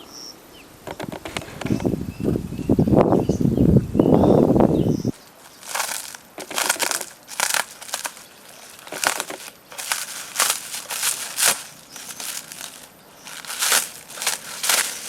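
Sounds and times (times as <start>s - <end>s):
dry brittle crunching: 5.2s - 15.0s.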